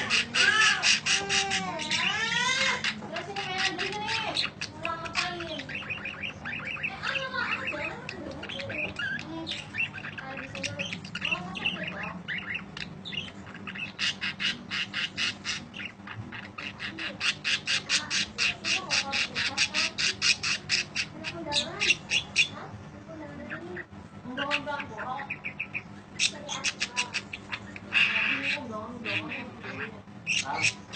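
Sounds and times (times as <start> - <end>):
budgerigar chattering and squawking: 0.0 - 30.9.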